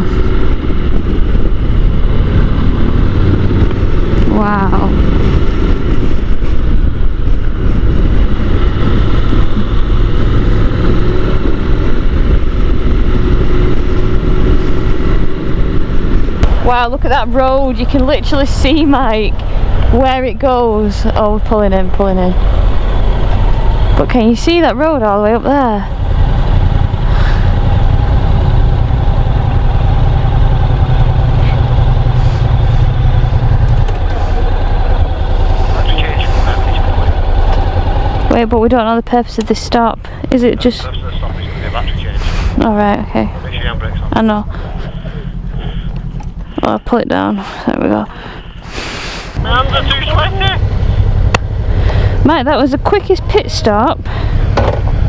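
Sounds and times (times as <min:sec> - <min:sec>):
wind rush on microphone: 0:00.0 - 0:39.2
motorcycle engine cruising: 0:00.0 - 0:55.0.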